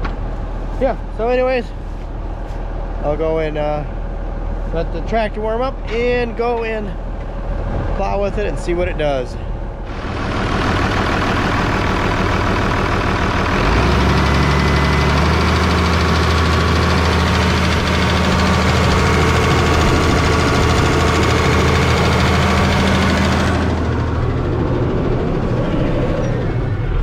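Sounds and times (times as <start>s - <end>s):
tractor engine idling and revving: 0.0s - 27.0s
engine ticking noise: 9.4s - 27.0s.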